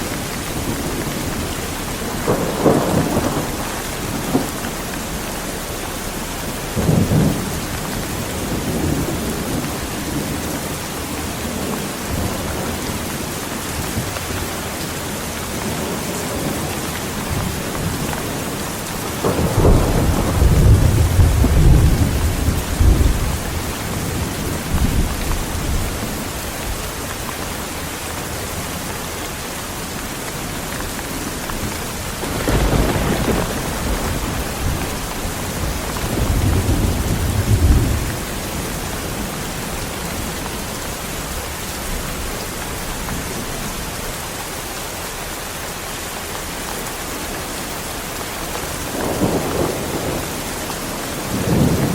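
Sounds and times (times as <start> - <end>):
heavy rain falling: 0.0 - 51.9
rolling thunder: 0.1 - 14.6, 15.6 - 26.8, 31.2 - 42.4, 48.8 - 51.9.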